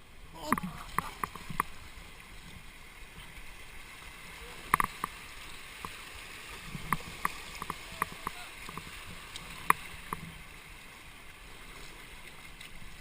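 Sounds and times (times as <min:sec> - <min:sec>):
rushing river water: 0:00.0 - 0:13.0.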